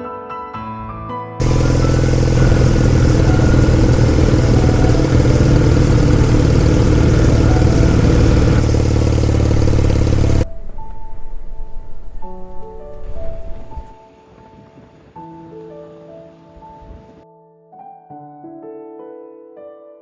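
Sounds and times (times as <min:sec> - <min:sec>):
motorcycle engine running: 0:01.4 - 0:14.0.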